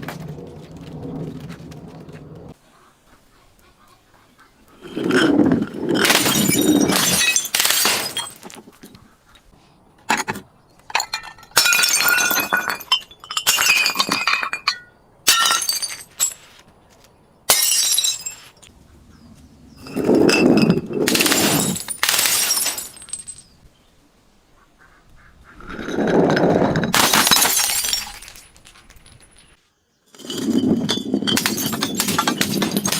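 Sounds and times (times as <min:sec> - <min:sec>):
glass bottles breaking and crushing: 0:04.8 - 0:08.8, 0:10.9 - 0:16.5, 0:17.5 - 0:18.6, 0:19.8 - 0:23.6, 0:25.8 - 0:32.9.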